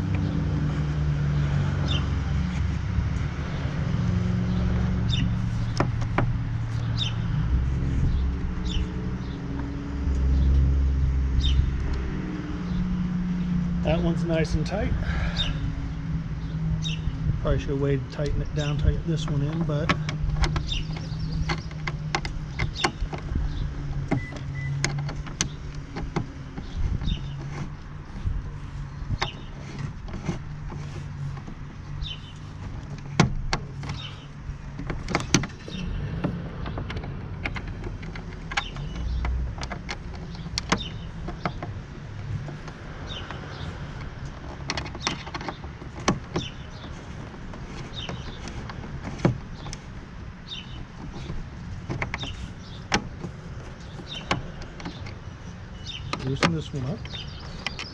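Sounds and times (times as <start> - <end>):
hand tools clicking and knocking: 18.1 - 28.3, 29.1 - 57.9.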